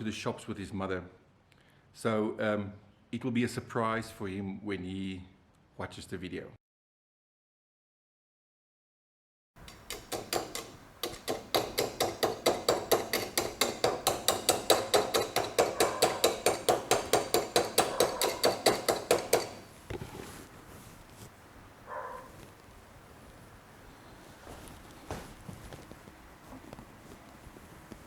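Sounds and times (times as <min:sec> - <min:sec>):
rapid sharp taps: 0:09.7 - 0:19.6.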